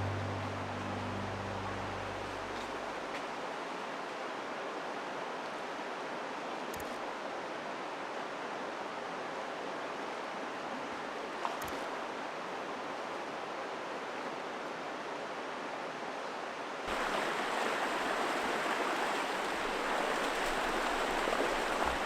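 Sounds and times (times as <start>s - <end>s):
faint clicks: 6.7s - 7.0s, 11.4s - 12.0s.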